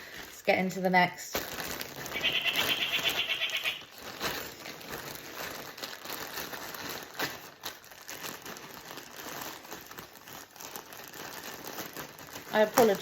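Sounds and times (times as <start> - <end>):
plastic bag crinkling: 0.0 - 13.0
bird squawking: 2.1 - 3.9.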